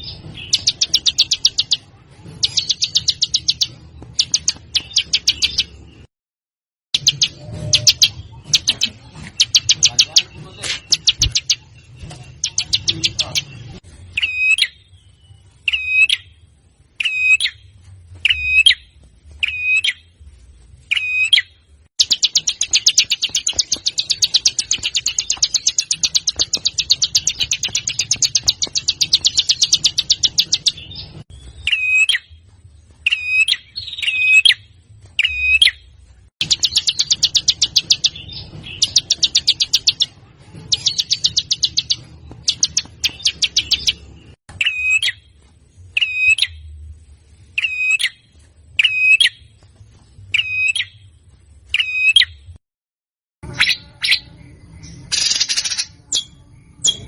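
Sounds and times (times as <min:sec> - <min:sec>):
bird rattling trill: 0:00.4 - 0:01.8, 0:02.4 - 0:05.7, 0:22.0 - 0:30.9, 0:36.4 - 0:44.0.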